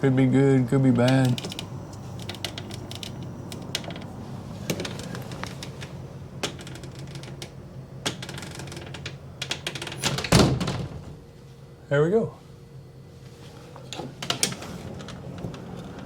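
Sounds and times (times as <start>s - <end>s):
steady low hum: 0.0s - 16.0s
door hardware clicks and knocks: 6.4s - 11.0s
door shutting with a knock: 10.0s - 11.2s.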